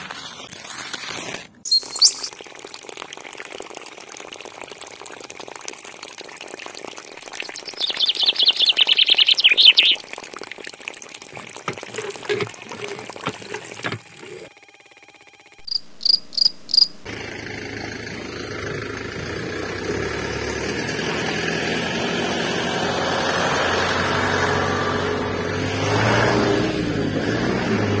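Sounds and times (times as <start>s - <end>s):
short high beeps: 1.7s - 2.3s
toy truck engine drone: 11.8s - 28.0s.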